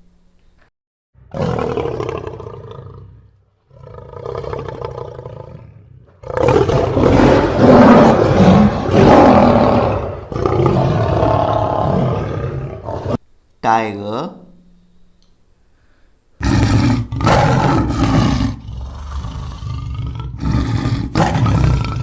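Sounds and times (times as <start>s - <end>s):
lion roaring: 1.2s - 13.2s, 16.4s - 22.0s.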